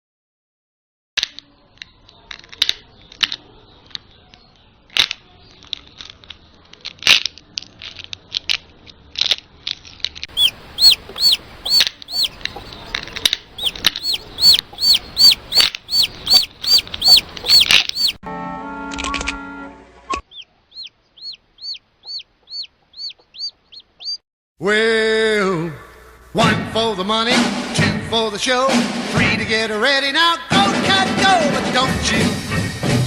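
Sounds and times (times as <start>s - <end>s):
chick peeping: 10.3s - 18.2s, 20.3s - 24.2s.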